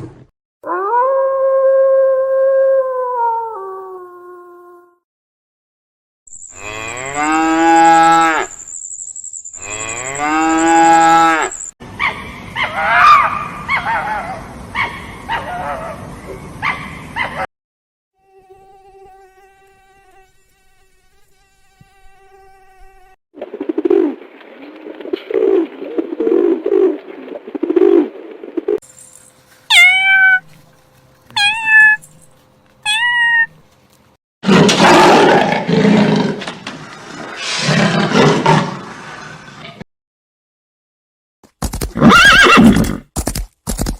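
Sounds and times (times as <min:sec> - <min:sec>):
cow mooing: 0:06.5 - 0:08.5, 0:09.6 - 0:11.6
loud rough animal roar: 0:34.4 - 0:39.8.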